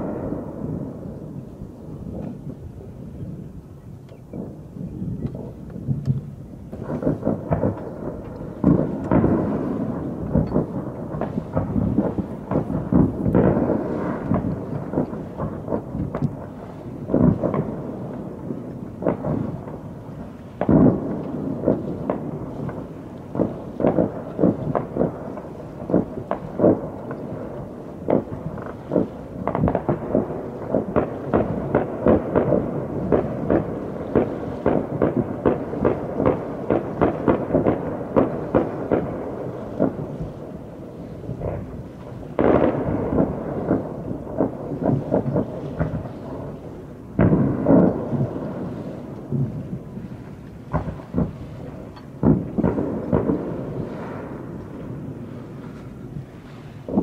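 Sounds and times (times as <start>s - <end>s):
distant fireworks booming and popping: 0.0s - 57.0s
rapid crackle of pops: 5.2s - 55.0s.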